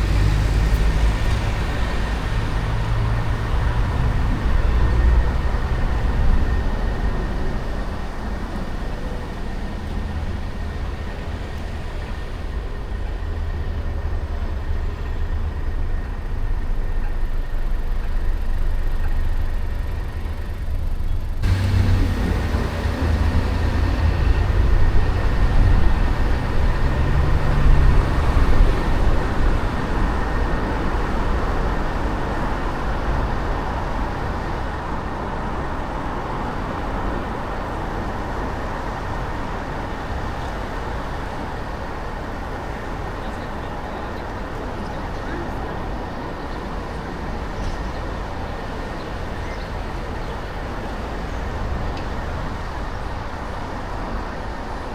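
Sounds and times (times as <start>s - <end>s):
car engine and road noise: 0.0s - 54.9s
traffic noise: 0.0s - 54.9s.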